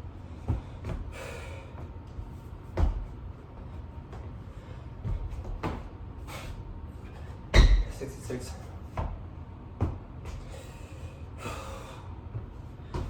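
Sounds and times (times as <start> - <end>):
heavy breath: 0.3 - 1.9, 10.3 - 13.0
thuds of body on floor: 0.4 - 4.3, 4.9 - 6.0, 7.5 - 8.0, 8.9 - 10.6, 12.3 - 13.0.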